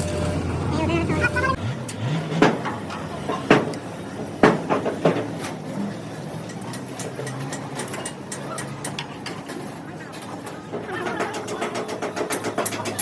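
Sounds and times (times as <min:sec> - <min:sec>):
sharp knocks: 0:04.4 - 0:05.3.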